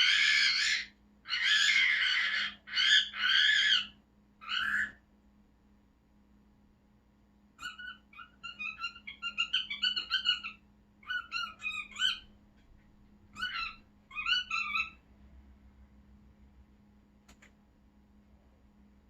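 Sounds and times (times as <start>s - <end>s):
cockatiel chirping and whistling: 0.0s - 5.0s, 7.6s - 12.4s, 13.4s - 15.0s.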